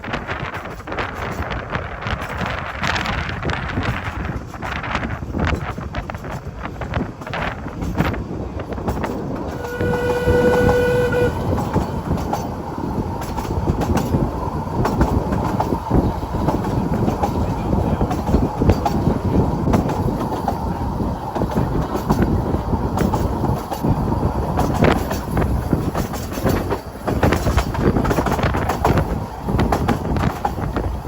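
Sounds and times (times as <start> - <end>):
train rumble and wheel clatter: 0.0 - 31.0
train whistle blast: 9.5 - 12.2.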